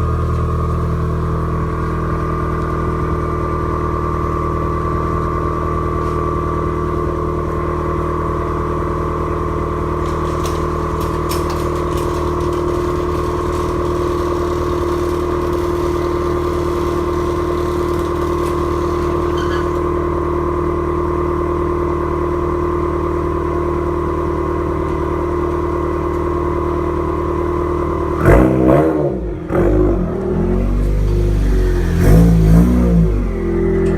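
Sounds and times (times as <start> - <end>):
car engine revving: 8.5 - 20.2, 28.0 - 33.9.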